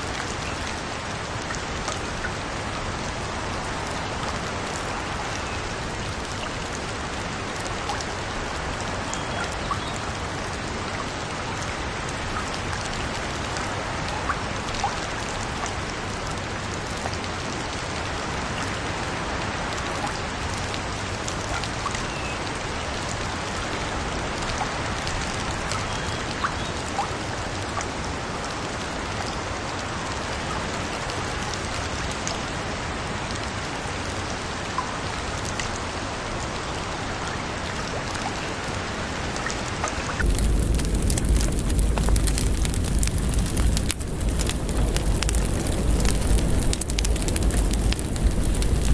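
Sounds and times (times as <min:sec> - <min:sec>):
steady rain hiss: 0:00.0 - 0:26.2, 0:40.2 - 0:48.9
crackling fire with pops: 0:40.2 - 0:48.9
faint drips: 0:40.2 - 0:48.9.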